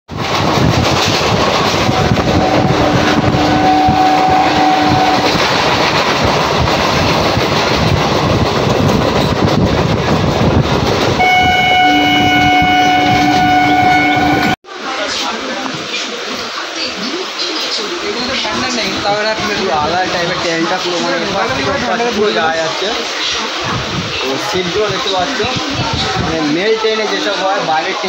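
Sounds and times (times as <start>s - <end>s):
train rumbling on rails: 0.1s - 28.0s
oncoming train horn: 1.8s - 5.4s, 11.2s - 14.6s
train horn: 1.8s - 5.4s, 11.2s - 14.6s.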